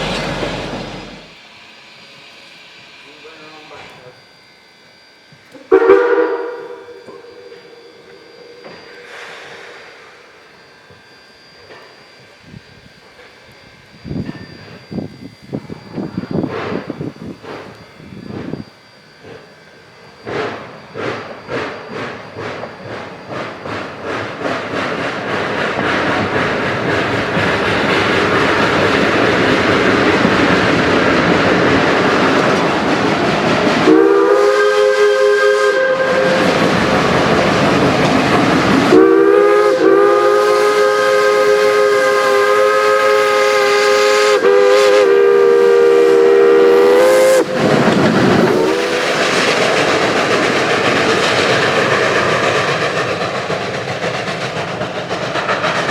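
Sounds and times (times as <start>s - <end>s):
steam whistle chord: 0.0s - 23.7s, 33.8s - 49.4s
steam locomotive exhaust chuffs: 0.0s - 55.9s.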